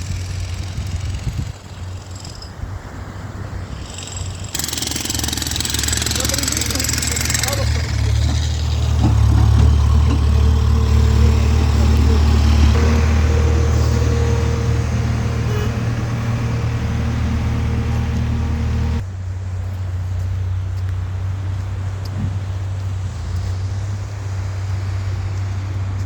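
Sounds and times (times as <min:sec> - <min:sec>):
engine rumbling: 0:00.0 - 0:26.0
faint steady tones: 0:04.6 - 0:19.0.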